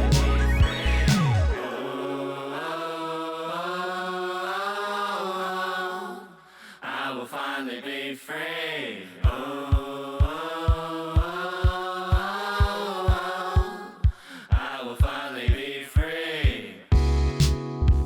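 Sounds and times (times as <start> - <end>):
hip-hop backing track: 0.0 - 1.6, 16.9 - 18.0
falling pitch sweep: 0.0 - 2.3
chant-like vocal sample: 0.0 - 16.8
kick drum beat: 9.2 - 18.0.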